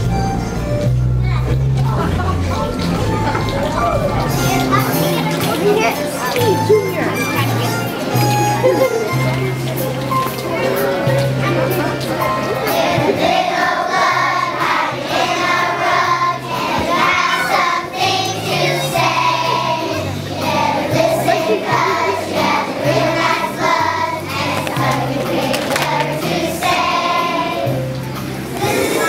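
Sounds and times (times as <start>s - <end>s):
recorded accompaniment with bass: 0.0s - 12.5s
children's choir singing: 11.8s - 29.0s.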